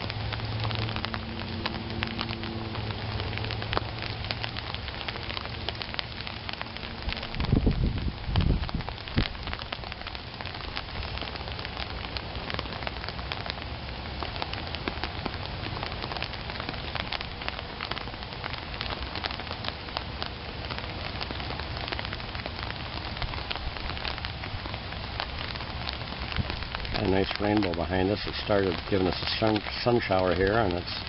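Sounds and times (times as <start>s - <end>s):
raindrop ticks: 0.0s - 31.0s
steady rain hiss: 0.0s - 31.0s.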